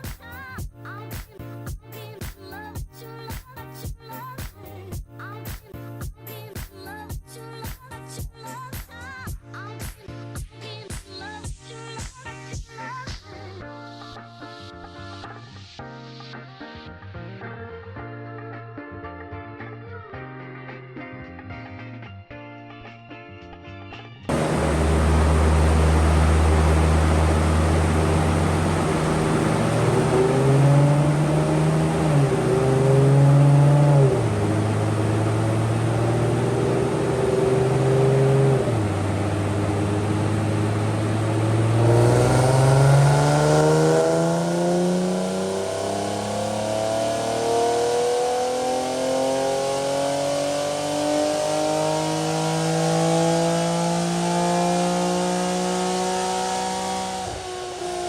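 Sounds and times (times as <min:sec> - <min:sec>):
car engine revving on dyno: 0:24.3 - 0:58.0.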